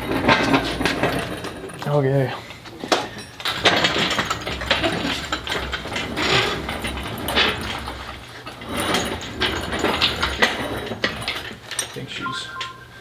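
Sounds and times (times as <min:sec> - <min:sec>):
metallic clanks and scraping: 0:00.0 - 0:12.2.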